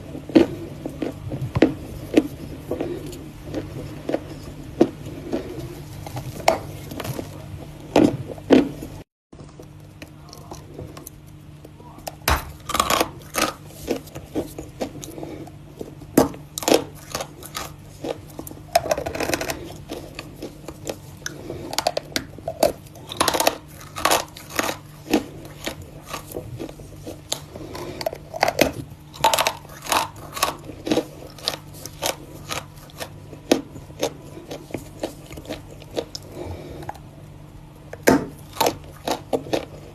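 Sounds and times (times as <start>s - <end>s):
crunching something brittle: 12.1s - 15.1s, 16.2s - 36.3s.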